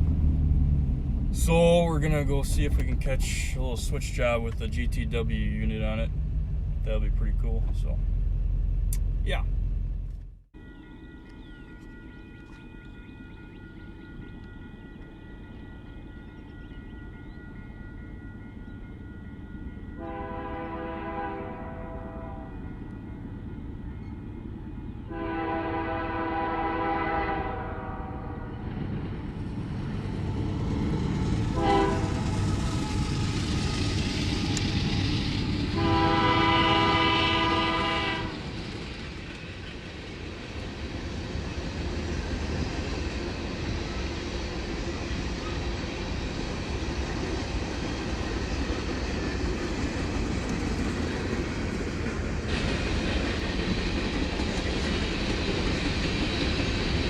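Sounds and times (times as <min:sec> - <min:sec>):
train passing rumble: 0:00.0 - 0:57.0
locomotive air horn: 0:20.0 - 0:22.6, 0:25.1 - 0:28.5, 0:31.6 - 0:32.3, 0:35.8 - 0:38.4.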